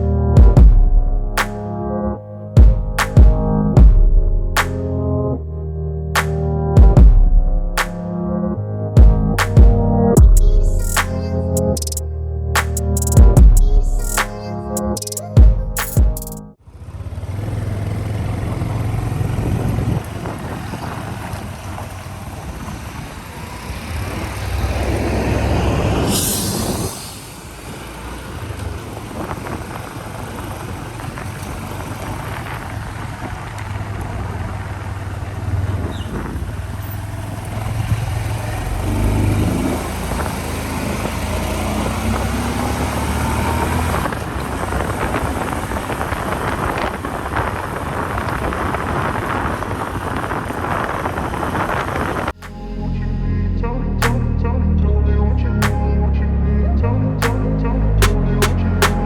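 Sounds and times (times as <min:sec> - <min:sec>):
low engine drone: 0:00.0 - 0:14.8
road and wind noise: 0:00.0 - 0:53.2, 0:54.0 - 0:59.0
vehicle passing close: 0:16.7 - 0:52.4.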